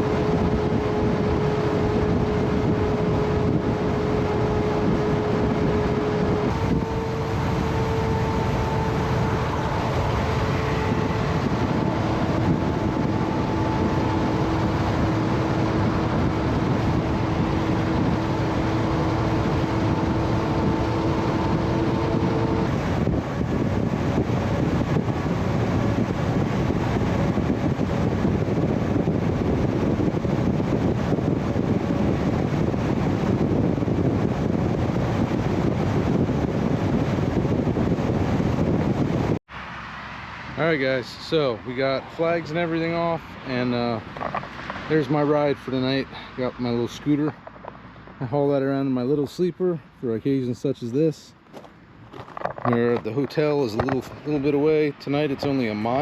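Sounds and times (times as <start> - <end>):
humming tone: 0.0 - 39.2
truck engine and road noise: 0.0 - 56.0.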